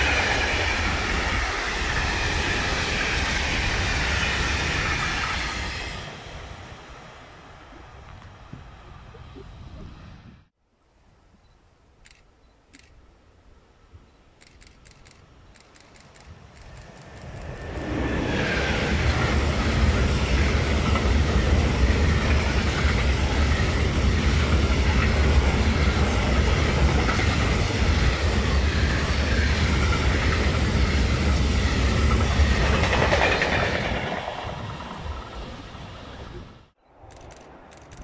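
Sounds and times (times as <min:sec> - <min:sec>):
wheels rumbling on rail: 0:00.0 - 0:10.5, 0:14.4 - 0:38.0
clickety-clack over rail joints: 0:14.4 - 0:17.8, 0:18.4 - 0:36.0.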